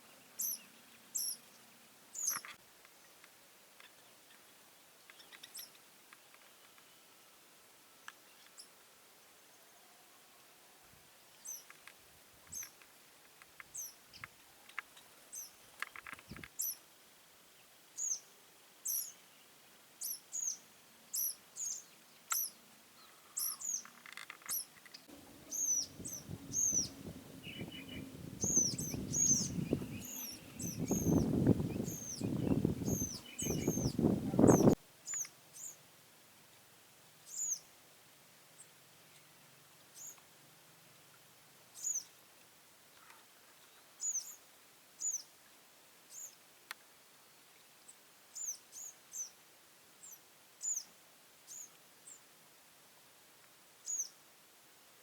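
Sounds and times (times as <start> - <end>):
small birds chirping: 0.0 - 7.1, 11.3 - 16.9, 17.6 - 35.8, 37.2 - 37.7, 38.6 - 40.3, 41.7 - 42.2, 42.9 - 45.4, 46.1 - 46.4, 47.5 - 49.4, 50.0 - 52.3, 53.8 - 54.2.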